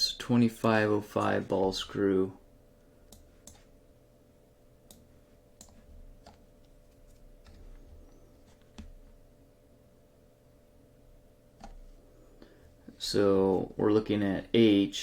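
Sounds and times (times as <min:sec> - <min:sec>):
faint steady hum: 0:00.0 - 0:15.0
computer mouse clicks: 0:03.1 - 0:03.7, 0:04.8 - 0:07.6, 0:11.6 - 0:11.8.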